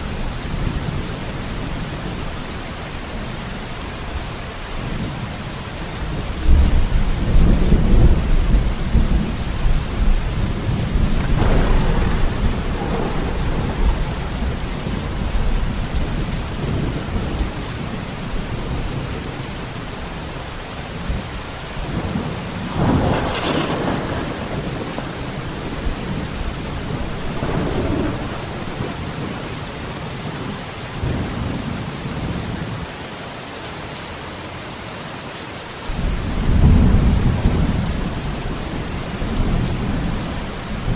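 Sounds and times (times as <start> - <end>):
heavy rain in a forest: 0.0 - 40.9
rolling thunder: 6.4 - 19.4, 21.1 - 31.8, 35.9 - 40.9
sharp thunderclap: 6.5 - 17.6, 21.8 - 30.2.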